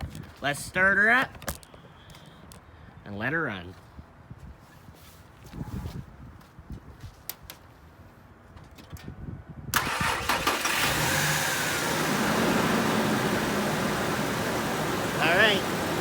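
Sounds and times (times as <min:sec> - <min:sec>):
truck engine starting and idling: 0:09.7 - 0:16.0.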